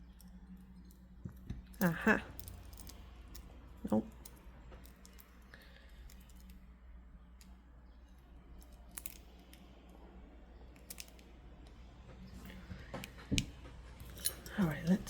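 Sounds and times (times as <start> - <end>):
low room hum: 0.0 - 15.0
stone beads clicking: 1.7 - 6.7, 7.3 - 10.0, 10.6 - 11.3.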